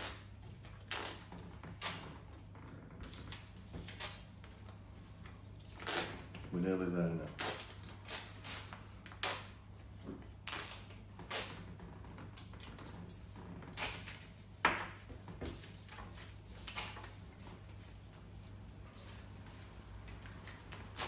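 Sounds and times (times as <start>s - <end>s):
paper tearing and rustling: 0.0s - 2.1s, 3.1s - 4.3s, 5.7s - 6.4s, 7.2s - 9.6s, 10.4s - 11.7s, 13.7s - 14.3s, 15.6s - 17.2s.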